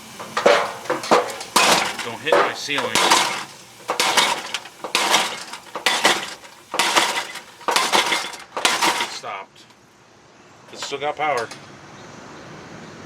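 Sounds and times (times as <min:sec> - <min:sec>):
sledgehammer clanking on metal: 0:00.0 - 0:09.4, 0:10.7 - 0:11.6.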